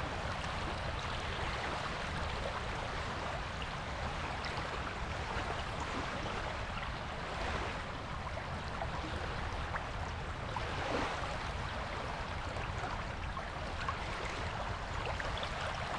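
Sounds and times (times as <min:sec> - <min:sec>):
waves washing on a beach: 0:00.0 - 0:15.9.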